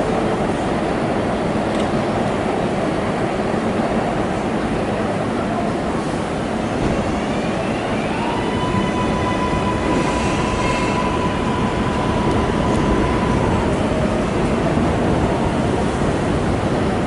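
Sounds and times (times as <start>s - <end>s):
train wheels rushing on rail: 0.0s - 17.0s
high-pitched squeal: 7.0s - 14.6s.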